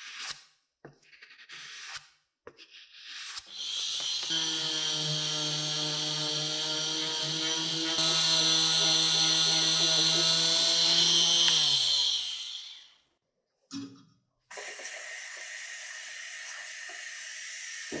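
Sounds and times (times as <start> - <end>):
electric tool hissing abrasively: 3.5 - 13.0.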